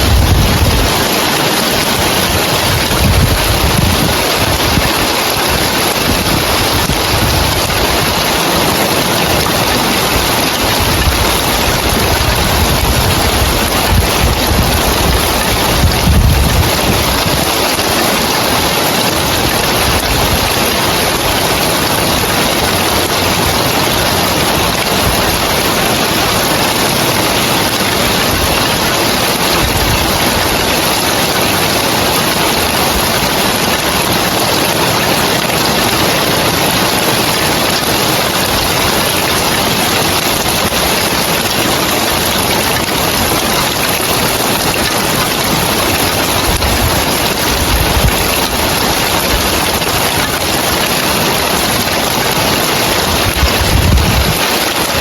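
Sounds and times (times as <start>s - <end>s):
heavy rain on roof tiles: 0.0s - 55.0s.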